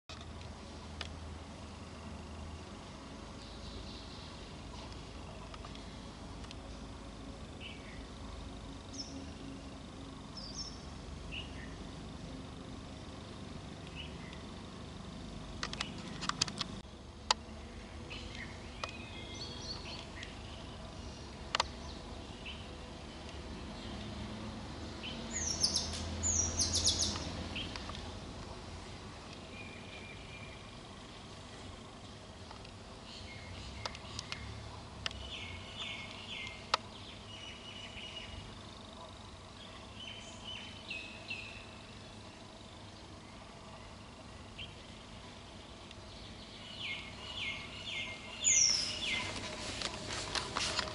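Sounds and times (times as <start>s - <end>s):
outdoor background noise: 0.0s - 50.9s
sharp clicks: 15.6s - 17.4s, 21.5s - 21.8s.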